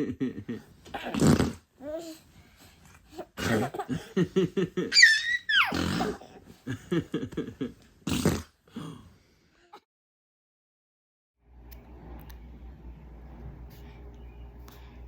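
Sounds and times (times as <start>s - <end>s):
child's high squeal: 5.0s - 5.8s.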